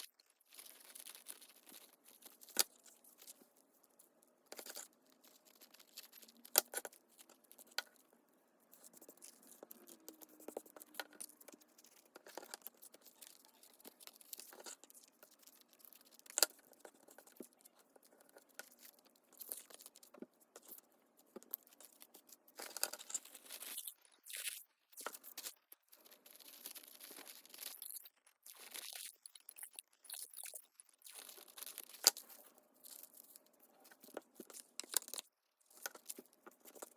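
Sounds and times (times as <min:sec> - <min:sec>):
paper rustling and crinkling: 0:00.0 - 0:08.0.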